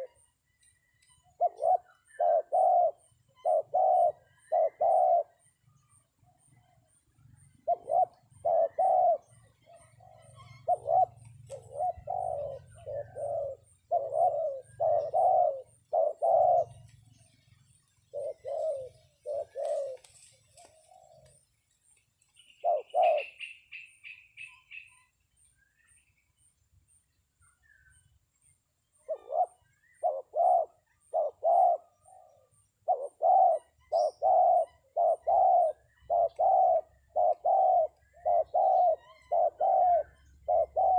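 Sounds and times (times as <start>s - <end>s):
dove cooing: 0.0s - 0.2s, 0.8s - 17.4s, 18.0s - 21.4s, 22.4s - 23.8s, 28.9s - 40.9s
small bird twittering: 32.9s - 40.9s.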